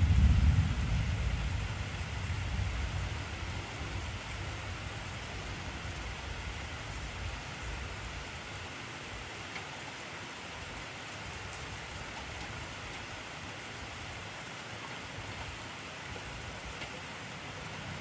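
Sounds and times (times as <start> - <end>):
heavy rain falling: 0.0 - 18.0
faint raindrop ticks: 9.4 - 10.1, 11.0 - 18.0.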